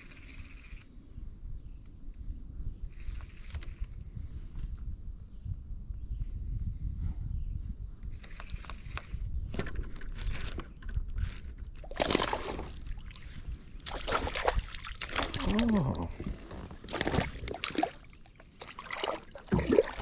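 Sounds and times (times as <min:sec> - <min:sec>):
insects droning: 0:00.0 - 0:20.0
water splashing against kayak: 0:11.2 - 0:20.0.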